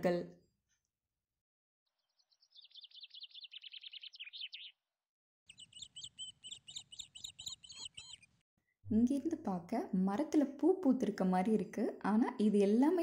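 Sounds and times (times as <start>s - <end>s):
birds chirping: 1.9s - 4.9s, 5.5s - 8.4s.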